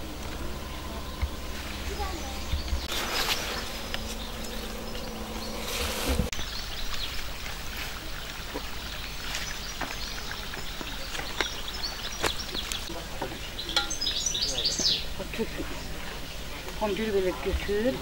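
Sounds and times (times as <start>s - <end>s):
insect buzzing: 1.4s - 6.3s.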